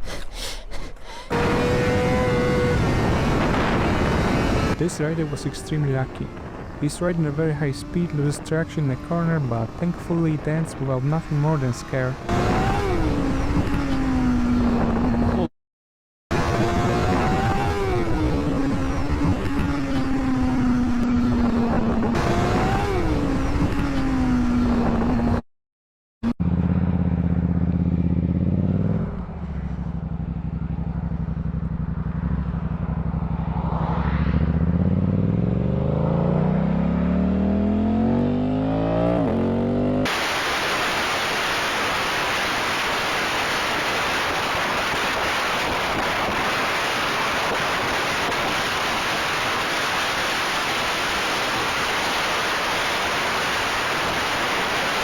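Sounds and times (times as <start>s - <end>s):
engine revving: 1.3s - 15.5s, 16.3s - 25.4s, 26.2s - 55.0s
motorcycle engine running: 26.3s - 36.1s
steady loud hiss: 40.1s - 55.0s.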